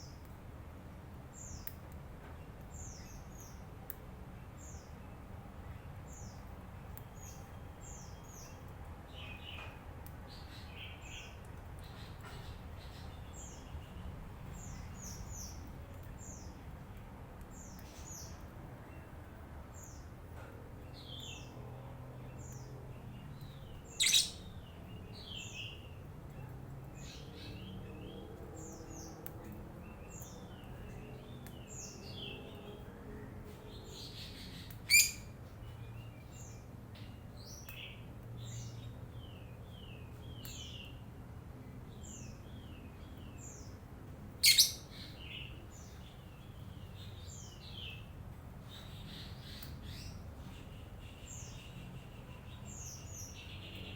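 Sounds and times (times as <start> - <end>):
lovebird chattering: 23.9 - 24.5, 34.9 - 35.3, 44.4 - 45.2.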